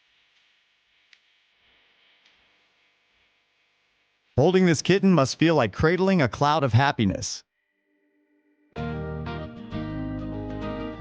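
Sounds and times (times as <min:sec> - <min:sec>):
plucked-string music: 0:08.8 - 0:11.0
steady bass line: 0:08.8 - 0:11.0.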